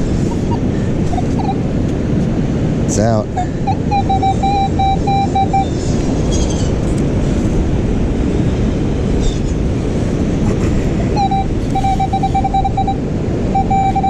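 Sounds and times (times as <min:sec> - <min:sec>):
beach surf: 0:00.0 - 0:14.0
wind rumbling on microphone: 0:00.0 - 0:14.0
metal detector warbling tone: 0:03.4 - 0:05.7, 0:11.2 - 0:14.0.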